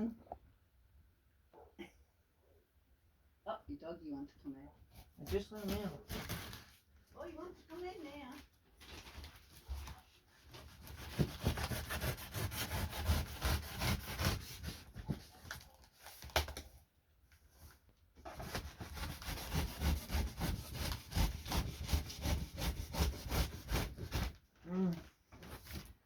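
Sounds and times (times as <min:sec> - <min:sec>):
knife sawing through cardboard: 0:10.4 - 0:15.3, 0:18.3 - 0:24.4.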